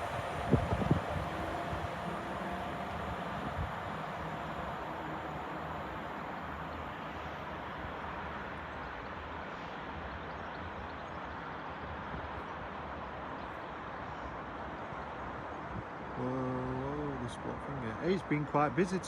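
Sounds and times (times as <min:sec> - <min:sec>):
diesel train rumbling: 0:00.0 - 0:12.1.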